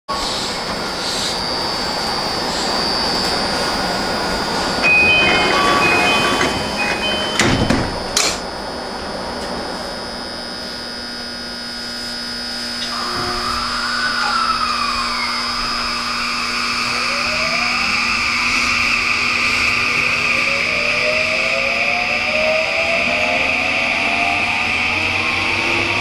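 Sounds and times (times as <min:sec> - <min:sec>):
train interior running noise: 0:00.1 - 0:26.0
constant high tone: 0:01.2 - 0:07.9, 0:12.8 - 0:25.8
electronic beeps: 0:04.8 - 0:07.9.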